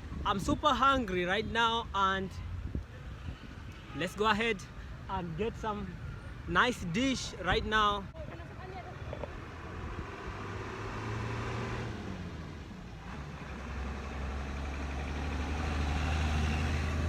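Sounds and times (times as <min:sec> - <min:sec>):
street noise: 0:00.0 - 0:17.0
vehicle engine humming: 0:08.0 - 0:17.0.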